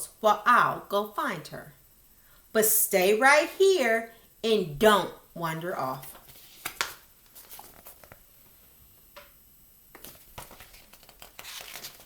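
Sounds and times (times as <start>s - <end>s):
book pages rustling: 6.0s - 8.6s, 9.9s - 12.0s.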